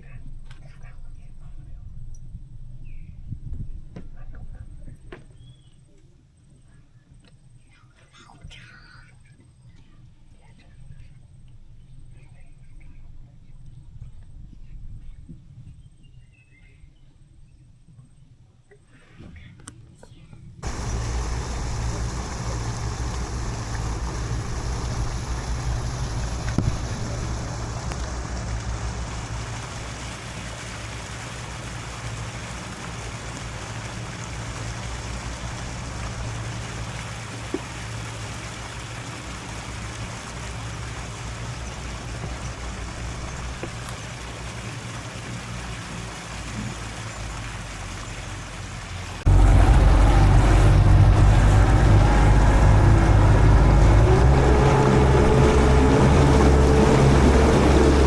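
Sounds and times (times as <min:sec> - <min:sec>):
motor whine: 0:20.6 - 0:38.5, 0:46.7 - 0:58.0
boat motor running: 0:20.6 - 0:58.0
water noise: 0:20.6 - 0:58.0.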